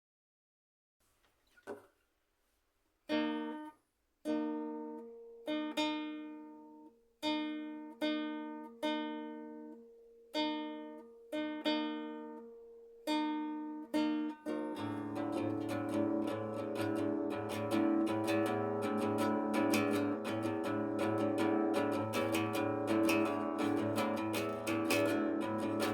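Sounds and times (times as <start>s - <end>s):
guitar chords ringing: 10.5s - 25.9s.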